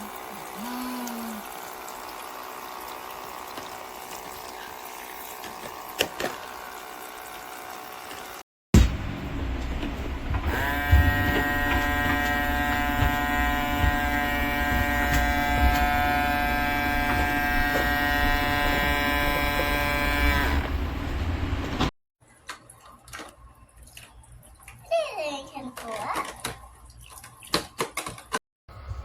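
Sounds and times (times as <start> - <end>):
small water pump buzzing: 0.0 - 21.9.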